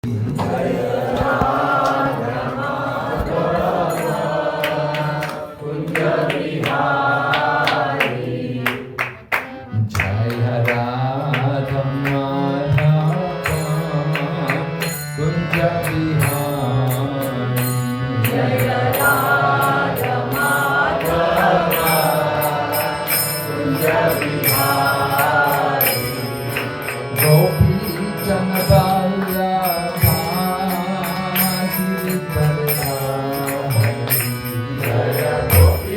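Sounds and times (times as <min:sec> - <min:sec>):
voices singing mantra: 0:00.0 - 0:09.0, 0:18.2 - 0:35.9
percussion steady beat: 0:00.0 - 0:35.9
held instrumental chords: 0:11.5 - 0:35.9.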